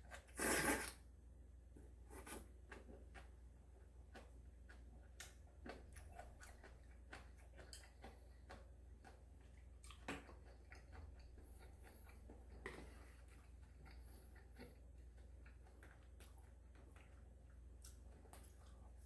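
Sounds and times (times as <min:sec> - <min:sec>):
person chewing food: 0:02.1 - 0:19.0.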